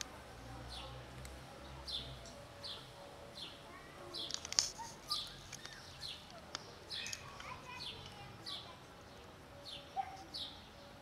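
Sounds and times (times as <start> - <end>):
small bird chirping: 4.2 - 10.8.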